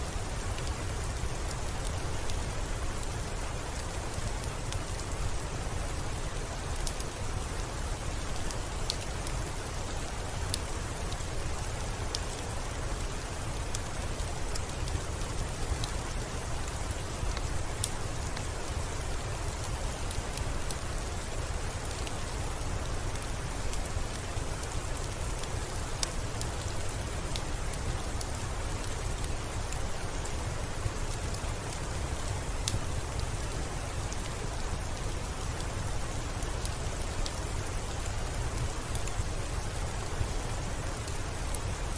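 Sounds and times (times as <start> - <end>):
steady rain falling: 0.0 - 41.9
fire crackling and popping: 0.2 - 3.1, 13.2 - 41.9.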